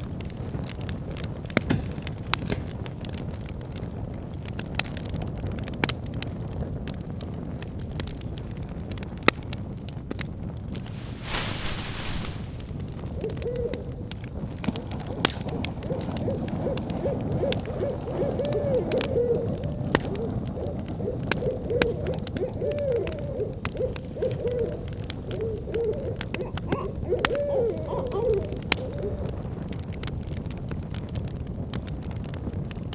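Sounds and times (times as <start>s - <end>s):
wood fire crackling and popping: 10.5s - 18.2s
owl hooting: 10.8s - 14.1s, 15.9s - 29.5s.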